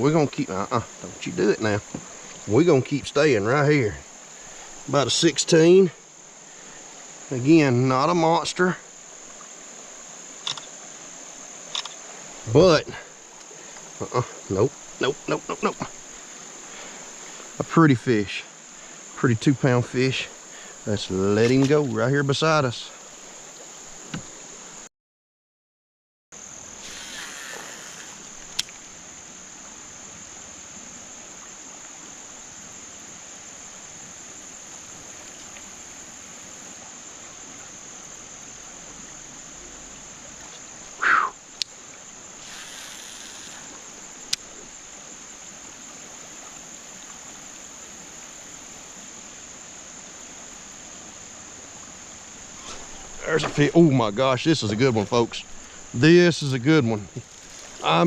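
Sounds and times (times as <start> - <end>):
insect chorus: 0.0 - 24.9, 26.3 - 58.0
sharp clicks: 10.4 - 10.7, 11.7 - 12.0.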